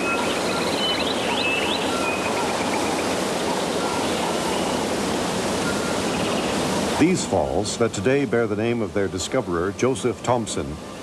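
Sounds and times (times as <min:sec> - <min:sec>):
birds whistling: 0:00.0 - 0:04.9, 0:05.6 - 0:06.6
birds chirping: 0:00.0 - 0:11.0
waterfall rushing: 0:00.0 - 0:11.0.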